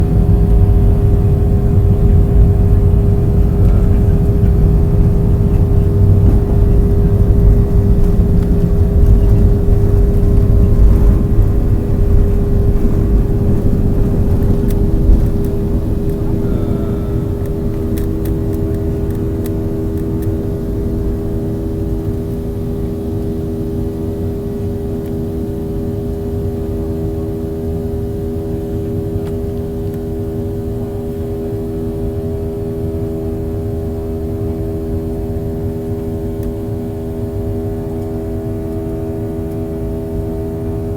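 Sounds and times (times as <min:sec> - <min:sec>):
heavy low rumble: 0:00.0 - 0:30.9
jet engine drone in cabin: 0:00.0 - 0:40.9.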